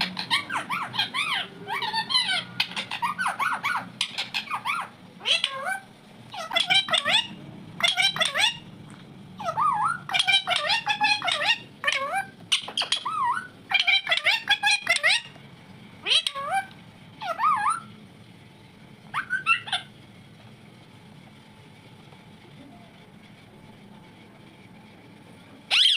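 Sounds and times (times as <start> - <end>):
parrot chattering calls: 0.0 - 8.8, 9.4 - 15.4, 16.0 - 17.9, 19.1 - 20.0, 25.7 - 25.9.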